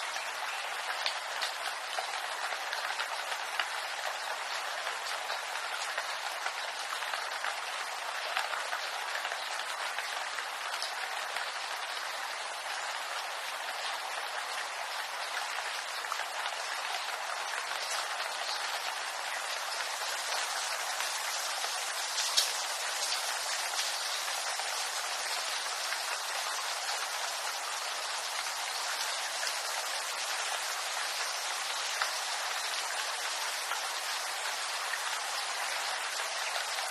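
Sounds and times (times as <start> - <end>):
rain pattering on leaves: 0.0 - 36.9.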